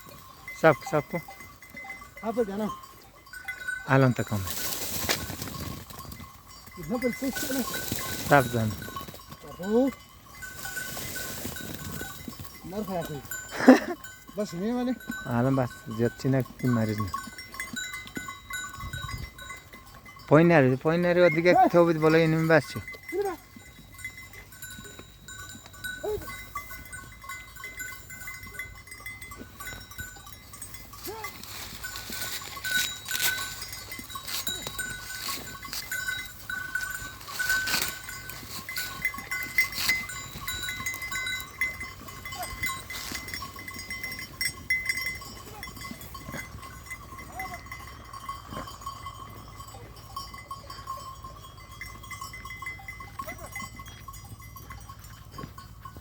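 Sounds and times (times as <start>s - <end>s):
sheep bells ringing: 0.0s - 56.0s
sheep crunching apples: 28.7s - 46.9s.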